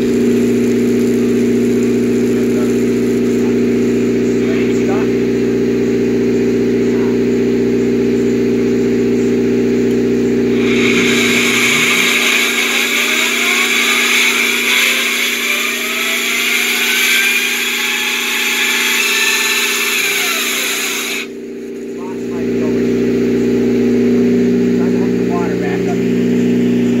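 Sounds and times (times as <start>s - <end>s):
concrete saw engine running: 0.0s - 27.0s
saw blade grinding concrete: 10.5s - 21.3s.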